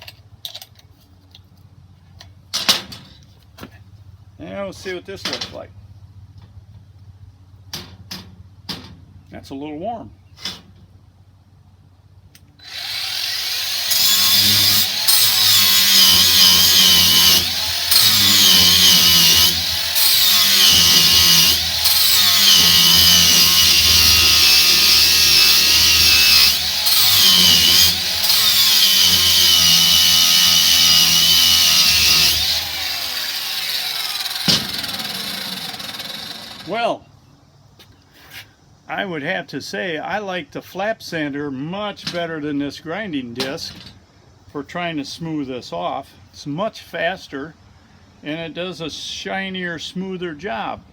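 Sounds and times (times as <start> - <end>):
angle grinder grinding metal: 12.6 - 36.8.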